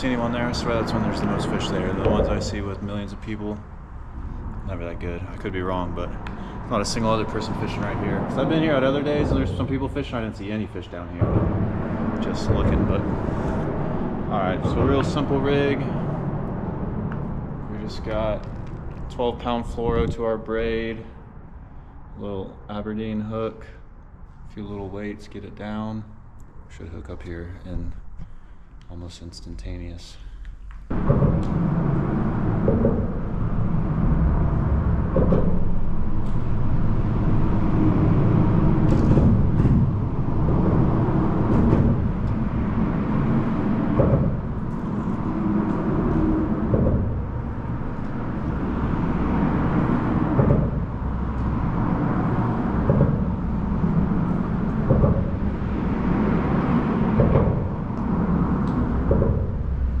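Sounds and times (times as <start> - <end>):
short thumps: 0.0 - 3.6, 10.9 - 18.8, 30.8 - 36.6, 37.2 - 60.0
road traffic rumbling: 0.0 - 60.0.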